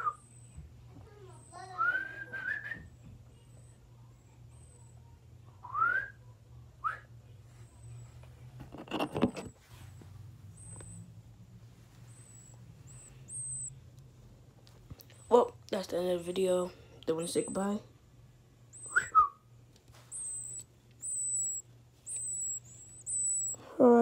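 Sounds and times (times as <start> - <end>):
person whistling: 1.8 - 2.9, 18.8 - 19.4
baby birds peeping: 12.0 - 13.8, 15.0 - 17.9, 20.0 - 23.7.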